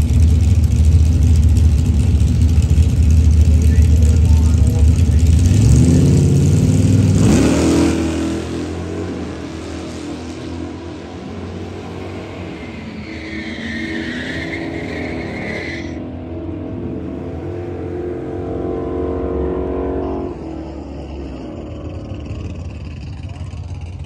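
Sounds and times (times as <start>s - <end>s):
car engine running: 0.0s - 14.9s, 16.0s - 24.0s
other car engines: 0.0s - 24.0s
tyre squeal: 12.2s - 16.0s.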